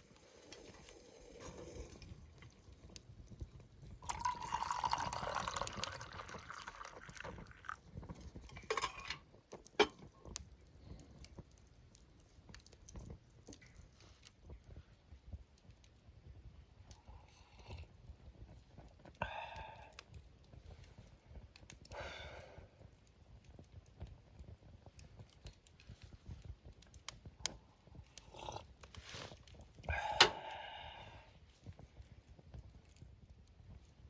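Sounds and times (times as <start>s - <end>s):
liquid being poured: 4.0s - 8.8s.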